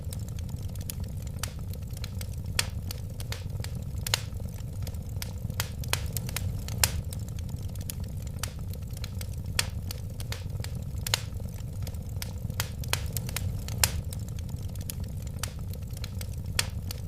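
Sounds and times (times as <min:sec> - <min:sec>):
fire crackles and pops: 0:00.0 - 0:17.0
wood fire rumbling: 0:00.0 - 0:17.0.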